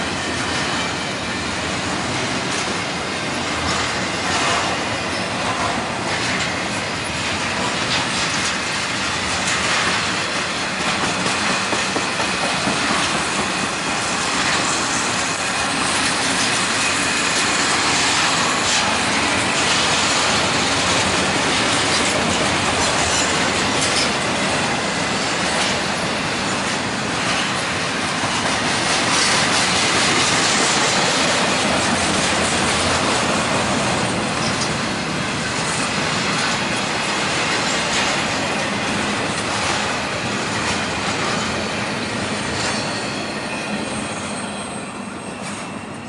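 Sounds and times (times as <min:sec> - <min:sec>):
train wheels on rails: 0:00.0 - 0:46.0
faint high wheel squeal: 0:04.7 - 0:05.7, 0:41.2 - 0:46.0.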